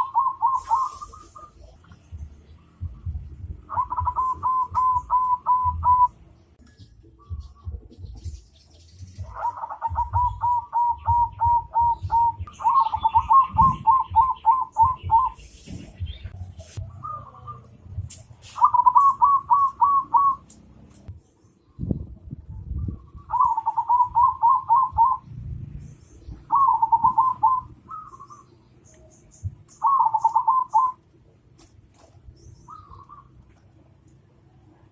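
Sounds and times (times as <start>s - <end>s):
bird calling quick repeated notes: 0.0s - 1.8s, 3.6s - 6.2s, 18.4s - 20.6s, 26.5s - 28.5s, 29.2s - 31.0s
low rumble with thuds: 1.6s - 6.1s, 6.8s - 17.0s.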